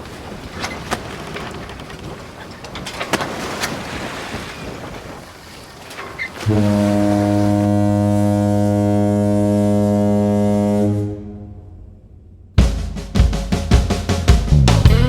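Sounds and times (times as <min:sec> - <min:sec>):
ship's horn blast: 0:06.4 - 0:12.5.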